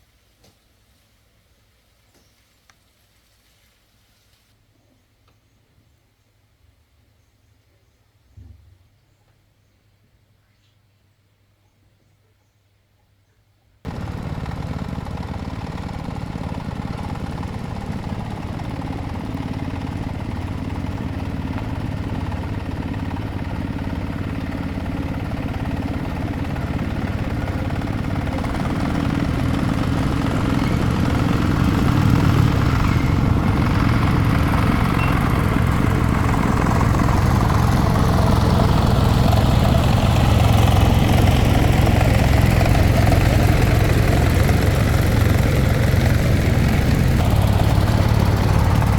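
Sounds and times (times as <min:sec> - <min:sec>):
tractor engine running: 0:13.9 - 0:48.9.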